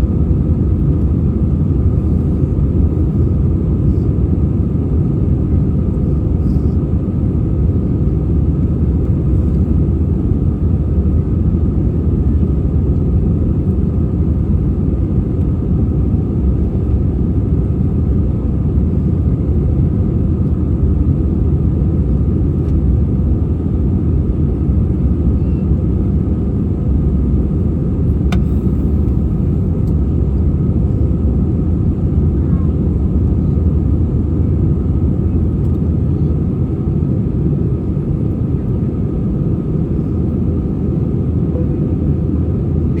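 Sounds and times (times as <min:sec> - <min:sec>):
airplane cabin engine rumble: 0:00.0 - 0:43.0
faint click: 0:28.3 - 0:28.6.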